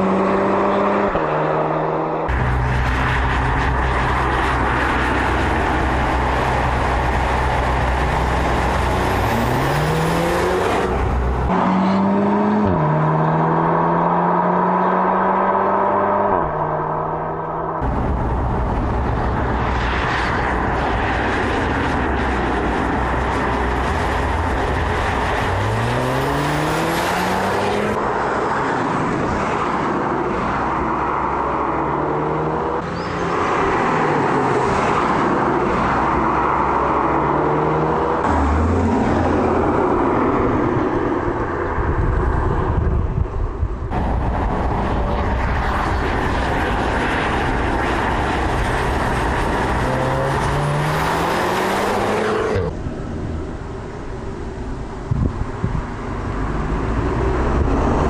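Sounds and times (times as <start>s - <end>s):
car engine accelerating: 0.0s - 29.1s, 43.6s - 54.2s
road and wind noise: 0.0s - 58.0s.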